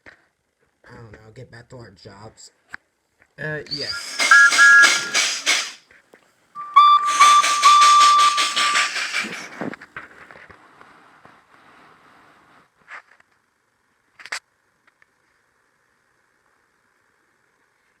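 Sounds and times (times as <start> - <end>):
steam engine chuffing: 3.7 - 5.8, 6.6 - 9.8
steam locomotive whistle: 3.7 - 5.8, 6.6 - 9.7.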